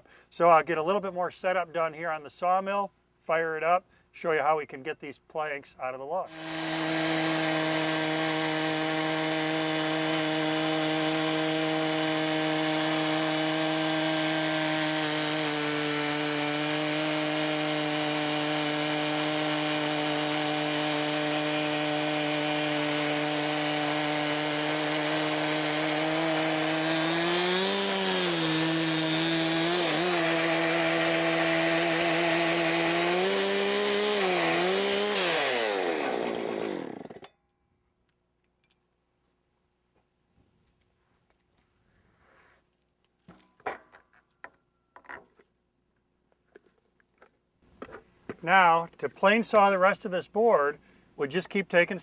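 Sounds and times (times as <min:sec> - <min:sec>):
sawmill engine running: 0:06.3 - 0:37.2
saw cutting through log: 0:06.3 - 0:37.3.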